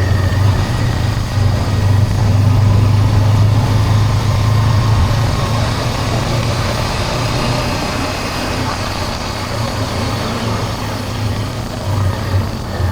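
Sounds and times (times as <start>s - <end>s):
motorcycle engine humming: 0.0s - 12.9s.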